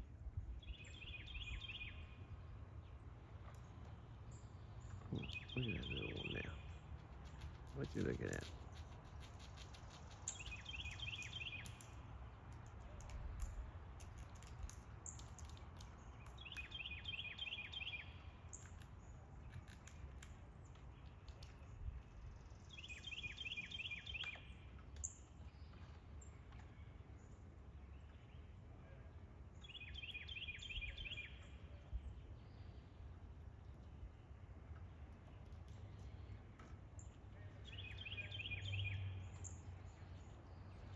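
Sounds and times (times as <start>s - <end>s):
songbird trilling: 0.7s - 2.1s, 5.0s - 6.8s, 9.6s - 11.9s, 37.6s - 39.6s.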